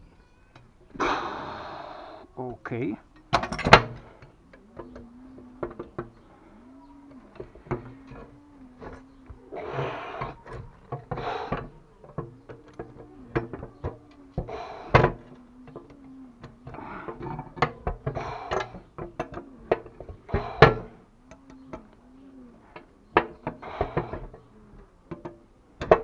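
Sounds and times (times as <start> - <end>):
dove cooing: 0.0 - 26.0
metal tools knocking and scraping: 2.4 - 6.3, 7.1 - 22.0, 22.7 - 24.5.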